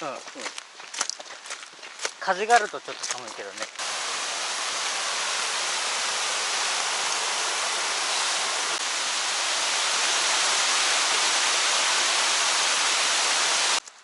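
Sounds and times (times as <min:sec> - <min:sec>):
mountain stream flowing water: 0:03.8 - 0:13.8.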